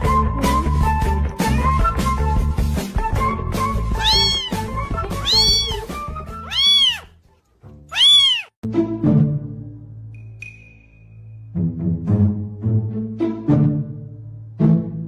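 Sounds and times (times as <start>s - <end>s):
background music: 0.0s - 15.0s
kitten meowing: 3.9s - 7.2s, 7.9s - 8.6s.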